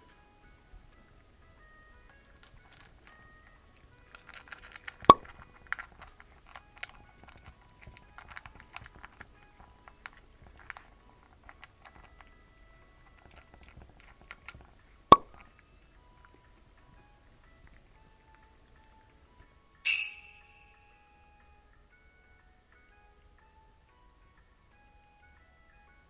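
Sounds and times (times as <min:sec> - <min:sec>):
cat crunching food: 0:00.0 - 0:19.8.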